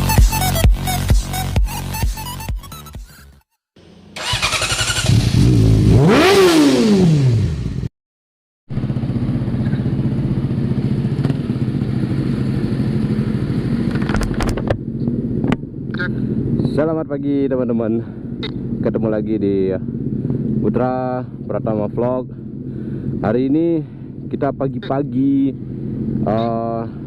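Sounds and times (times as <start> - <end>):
motorcycle engine revving: 3.8 - 7.9, 8.7 - 16.8, 18.2 - 24.4.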